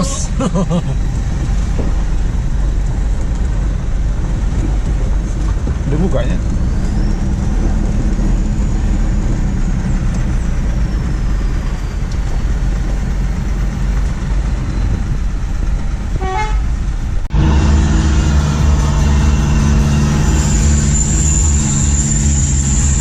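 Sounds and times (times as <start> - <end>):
deep diesel exhaust drone: 0.0 - 23.0.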